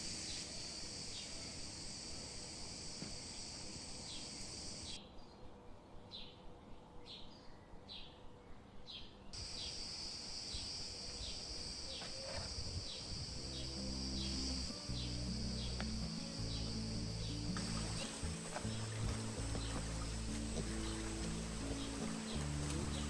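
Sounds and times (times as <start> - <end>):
insect chorus buzzing: 0.0 - 5.0, 9.4 - 23.0
short insect chirps: 9.4 - 23.0.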